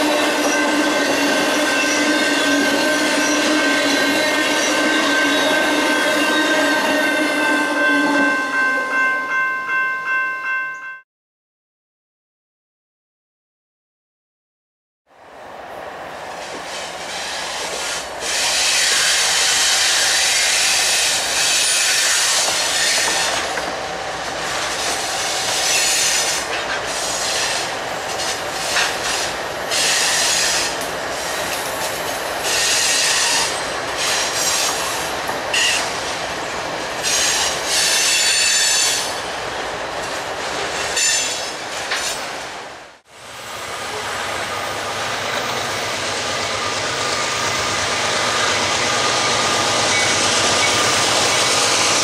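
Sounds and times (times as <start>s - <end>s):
train wheels squealing: 32.4s - 35.9s, 37.0s - 39.2s, 41.0s - 42.2s, 44.5s - 52.0s.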